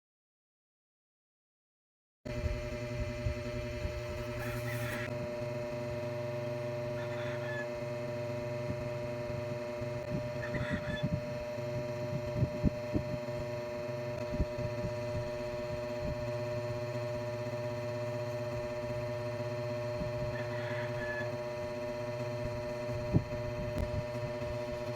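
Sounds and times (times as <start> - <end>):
low background hum: 2.3 - 24.9
brief scratchy noises: 4.0 - 5.1.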